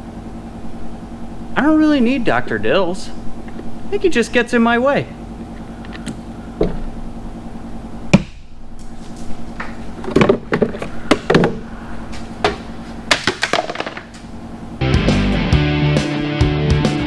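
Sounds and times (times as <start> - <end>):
low hum: 0.0 - 15.5
tools knocking and clanking: 5.8 - 6.9, 8.1 - 14.3.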